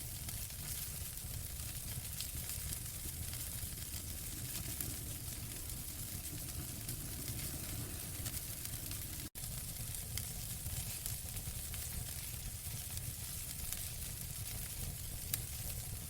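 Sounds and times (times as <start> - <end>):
wood fire burning and crackling: 0.0 - 16.0.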